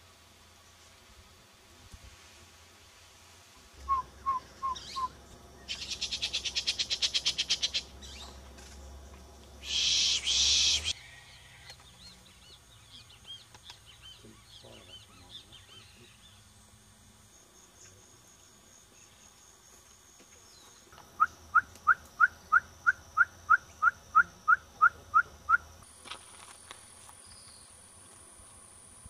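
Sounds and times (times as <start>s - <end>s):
bird hooting: 3.9s - 7.9s, 9.6s - 11.0s.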